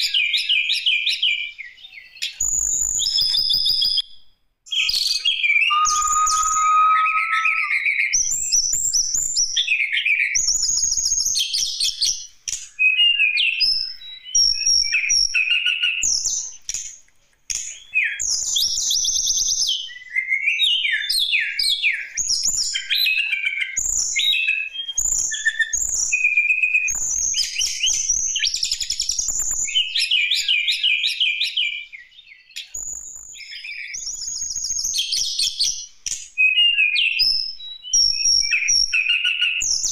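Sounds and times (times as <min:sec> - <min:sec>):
bird singing chirps and trills: 0:04.8 - 0:07.9.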